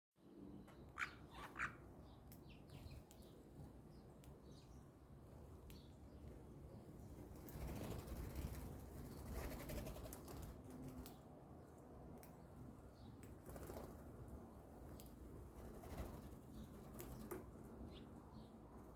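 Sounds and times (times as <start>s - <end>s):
bird wings flapping: 7.4s - 11.1s, 13.4s - 14.1s, 15.6s - 17.4s.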